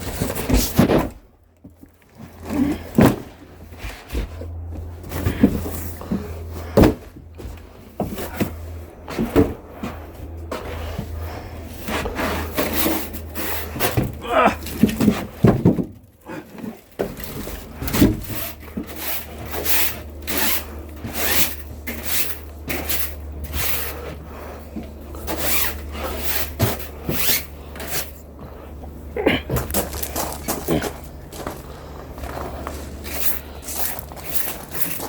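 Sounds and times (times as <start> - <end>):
firewood logs knocking together: 0.0 - 9.6, 12.0 - 19.3, 29.2 - 35.0.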